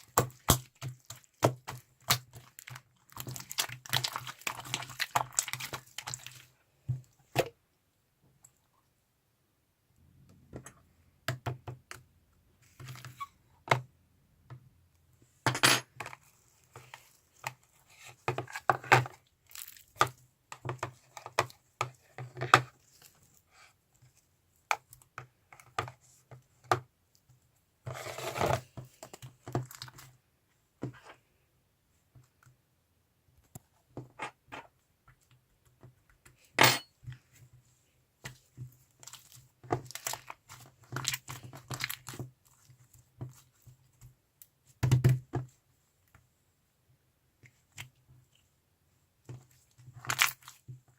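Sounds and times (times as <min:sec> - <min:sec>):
crinkly slime rustles: 0:00.0 - 0:07.1, 0:16.1 - 0:24.7, 0:37.2 - 0:44.7.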